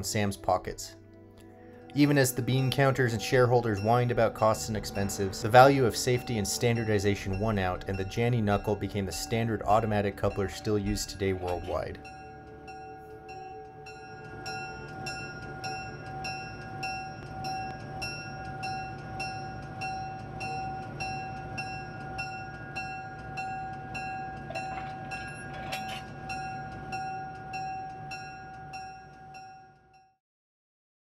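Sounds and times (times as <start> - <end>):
steady tone: 1.5 - 29.7
low pulsing rumble: 2.3 - 27.7
metallic ding: 6.4 - 12.9, 22.3 - 27.8.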